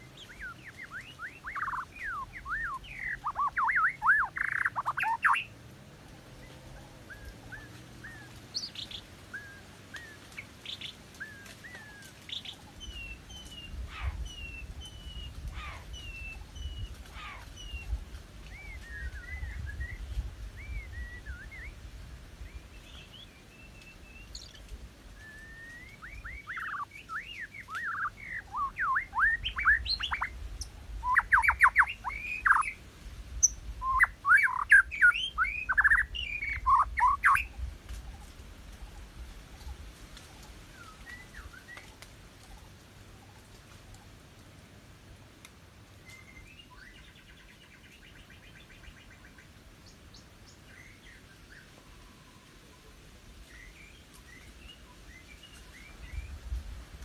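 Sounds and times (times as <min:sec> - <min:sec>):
bird chirping and whistling: 0:00.2 - 0:05.5, 0:20.6 - 0:21.8, 0:25.2 - 0:30.3, 0:31.0 - 0:32.8, 0:33.4 - 0:37.5.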